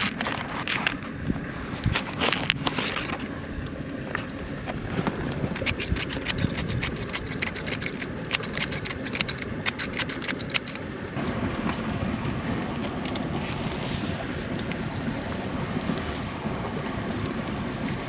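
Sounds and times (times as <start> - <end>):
mountain stream rushing: 4.3 - 18.0
sharp crackling: 5.1 - 11.2.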